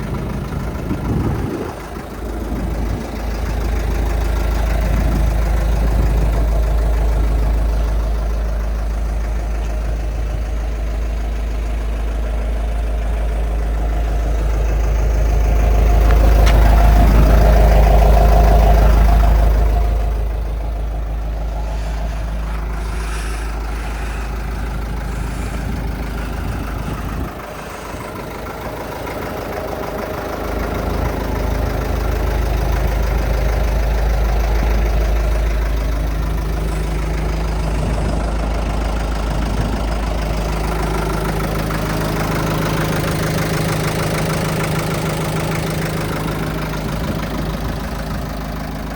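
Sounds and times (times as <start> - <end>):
dump truck engine humming: 0.0 - 48.9.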